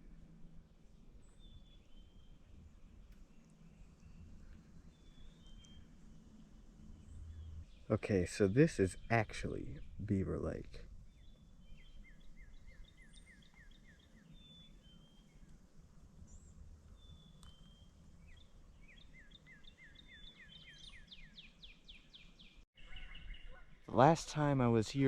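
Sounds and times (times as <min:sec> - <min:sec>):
songbird singing: 0:01.2 - 0:25.0
bird chirps: 0:03.2 - 0:06.0, 0:06.9 - 0:15.5, 0:16.2 - 0:24.0.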